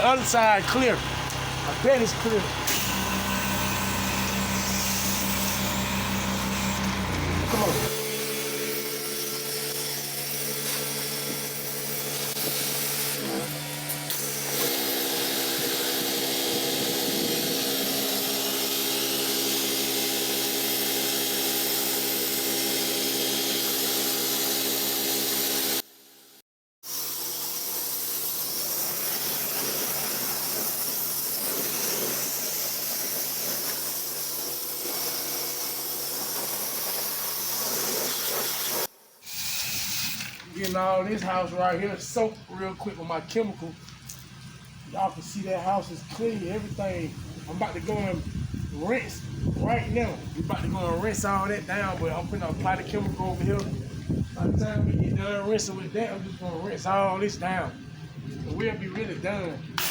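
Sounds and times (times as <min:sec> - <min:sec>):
small gas engine running: 0:00.0 - 0:58.4
water spraying hiss: 0:27.7 - 0:40.2.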